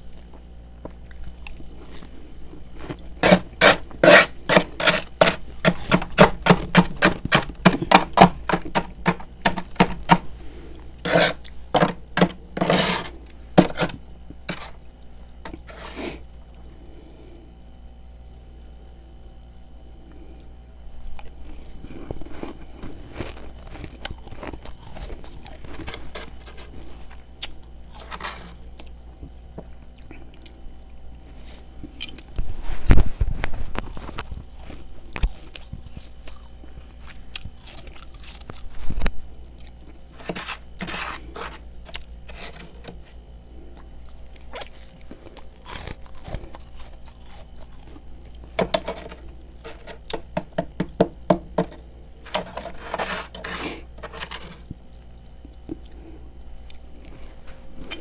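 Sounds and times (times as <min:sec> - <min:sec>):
frost being chewed crunching: 0:00.0 - 0:14.8, 0:21.2 - 0:32.3, 0:33.3 - 0:50.2.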